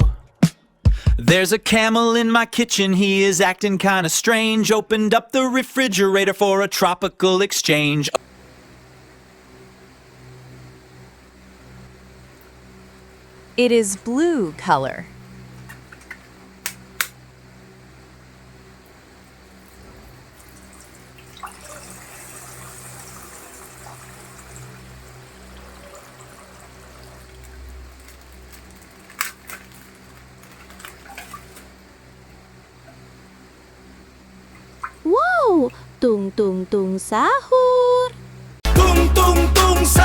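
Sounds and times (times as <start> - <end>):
plastic crinkling and clicking: 15.6 - 17.2, 27.4 - 31.7
water pouring from plastic bag: 25.4 - 31.8.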